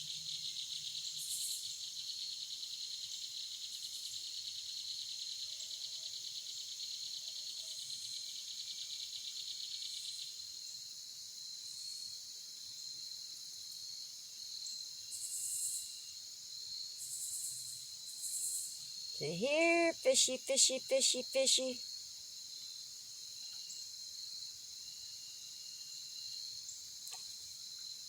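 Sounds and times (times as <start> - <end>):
fast pulsing insect trill: 18.2 - 21.8.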